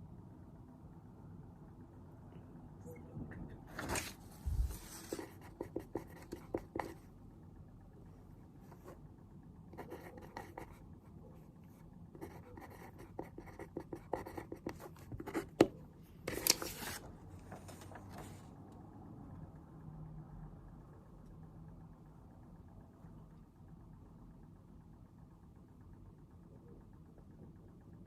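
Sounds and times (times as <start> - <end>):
faint low hum: 0.0 - 28.0
paper rustling: 3.7 - 5.2, 16.3 - 18.4
pen scratching on paper: 4.6 - 7.0, 9.8 - 10.8, 12.2 - 15.7.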